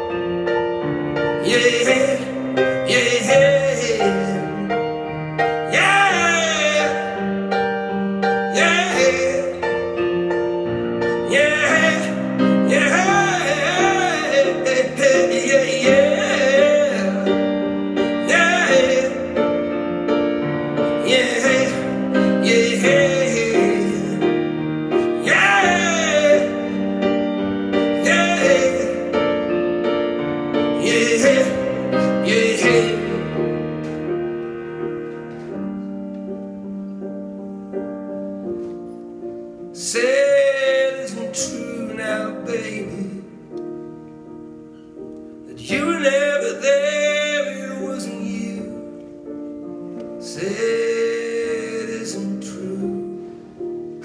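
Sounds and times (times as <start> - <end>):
piano and keyboard chords: 0.0 - 54.0
wordless singing: 1.4 - 4.8, 8.5 - 9.6, 11.1 - 19.6, 20.9 - 24.4, 25.0 - 29.4, 30.7 - 33.6.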